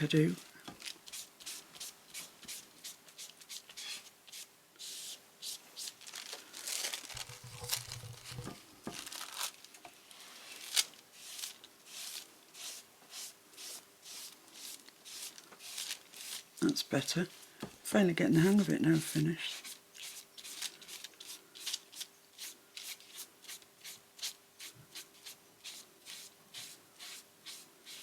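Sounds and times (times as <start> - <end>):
paper rustling and crinkling: 5.8 - 12.3, 15.2 - 16.4, 20.0 - 22.1.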